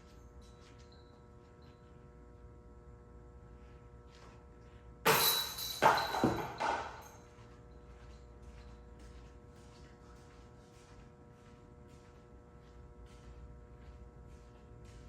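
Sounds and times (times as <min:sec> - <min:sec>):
metallic crash of chains: 0:05.1 - 0:07.2
chain clanking and rattling: 0:05.1 - 0:07.4.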